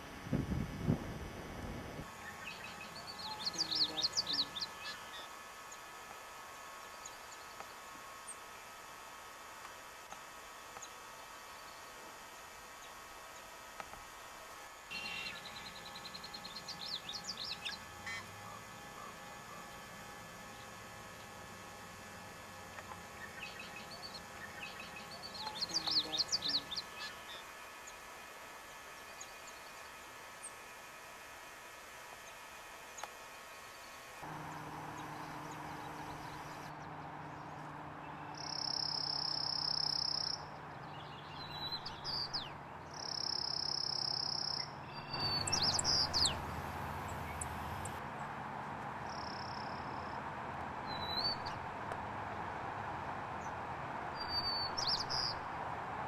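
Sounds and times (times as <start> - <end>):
songbird singing high notes: 34.3 - 48.0.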